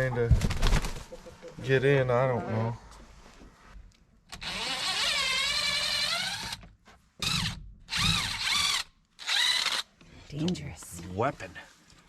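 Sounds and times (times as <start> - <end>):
power drill motor whirring: 4.4 - 6.6, 7.2 - 9.9.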